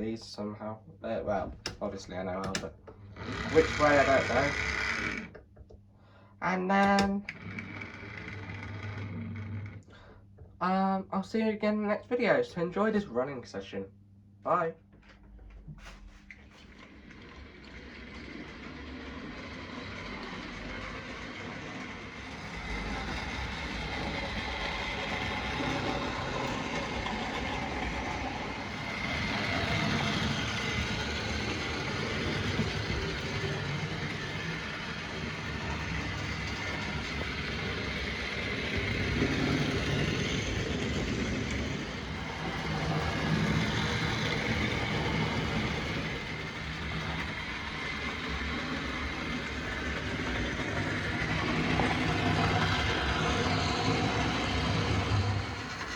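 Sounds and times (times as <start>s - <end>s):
wheels rattling over rails: 1.3s - 5.4s, 6.9s - 9.8s, 16.5s - 55.9s
electric motor whirring: 3.0s - 5.4s.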